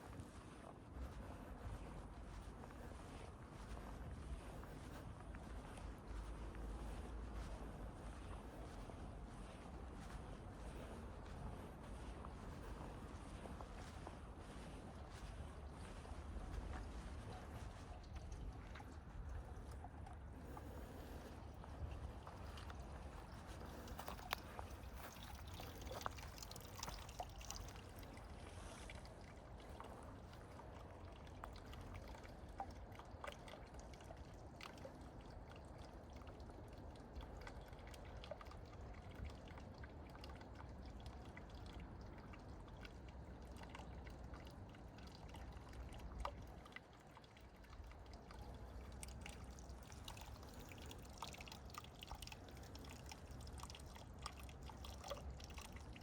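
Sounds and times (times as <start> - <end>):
water trickling and dripping: 0.0 - 56.0
steady low rumble: 0.9 - 33.0.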